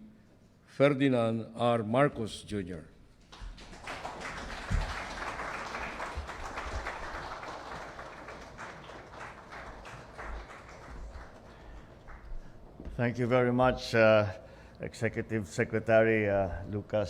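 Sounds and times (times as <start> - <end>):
audience applauding: 3.3 - 12.6.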